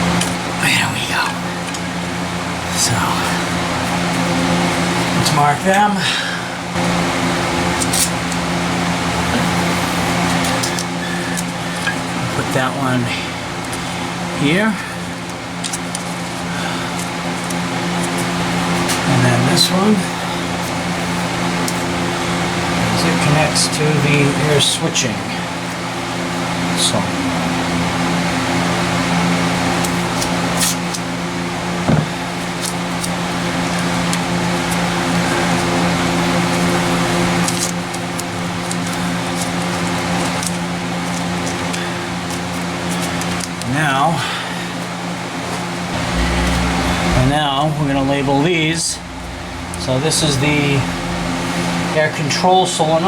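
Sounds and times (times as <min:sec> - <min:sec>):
steady machine hum: 0:00.0 - 0:53.0
dull knock: 0:31.9 - 0:32.2.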